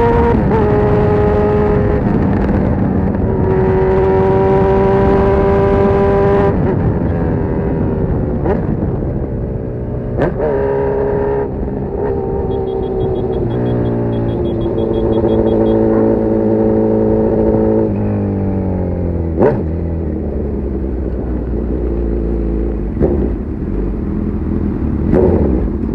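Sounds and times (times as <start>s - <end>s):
motorcycle engine running: 8.2s - 25.9s
engine rev blips: 12.1s - 16.2s.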